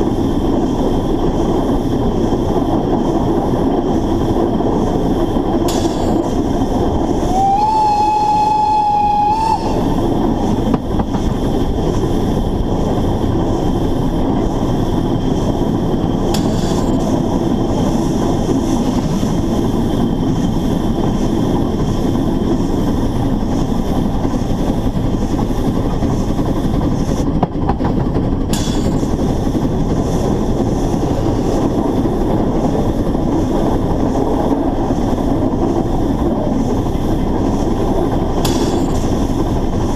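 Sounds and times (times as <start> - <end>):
steam locomotive running: 0.0 - 39.9
steam whistle: 7.2 - 10.0.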